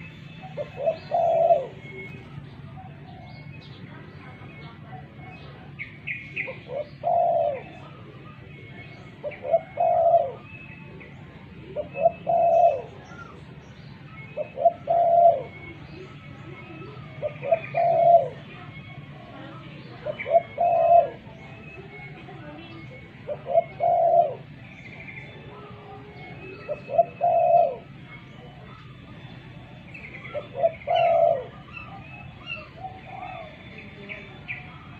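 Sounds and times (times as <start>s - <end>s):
dove cooing: 0.0s - 34.9s
small birds chirping: 0.0s - 34.9s.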